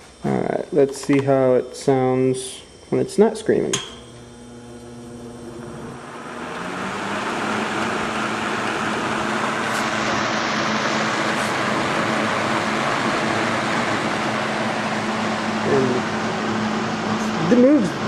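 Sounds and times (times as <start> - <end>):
low motor hum: 3.8 - 18.0
fan air whoosh: 5.9 - 18.0.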